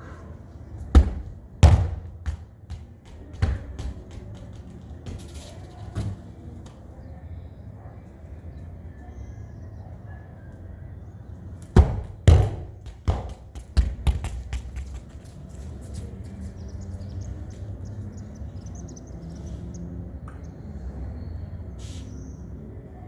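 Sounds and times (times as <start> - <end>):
football bouncing: 1.0 - 6.1, 11.8 - 15.2.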